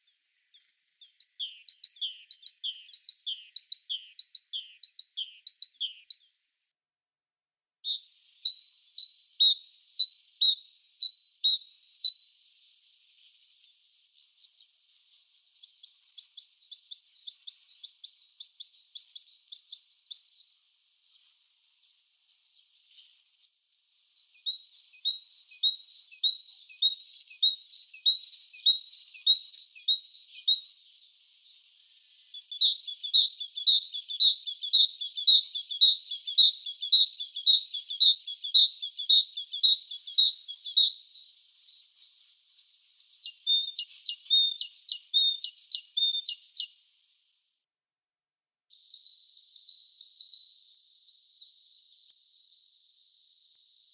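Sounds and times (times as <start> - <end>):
small songbird singing: 0.0 - 53.9.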